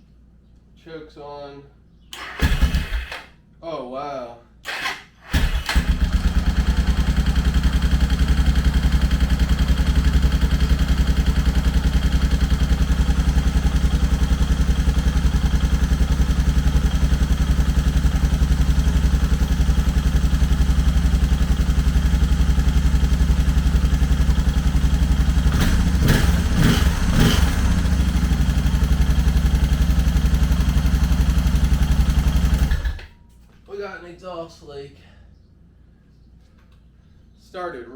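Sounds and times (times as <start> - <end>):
motorcycle engine running: 5.3 - 33.0.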